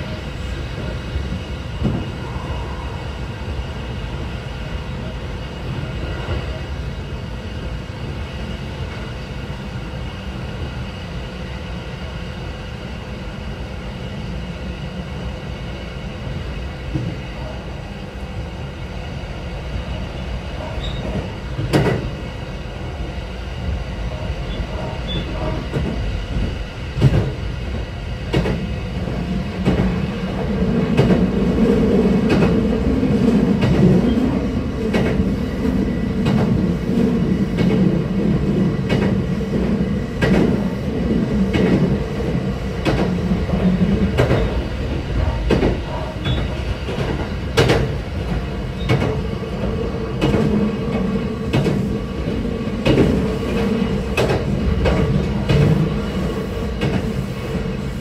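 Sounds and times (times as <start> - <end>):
train motor and gear hum: 0.0 - 58.0.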